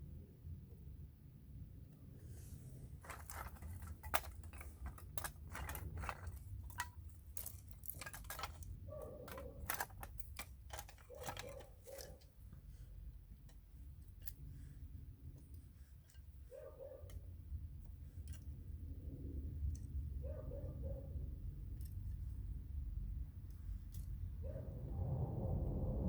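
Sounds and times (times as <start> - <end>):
low steady rumble: 0.0 - 26.0
firewood pieces knocking together: 3.0 - 12.3.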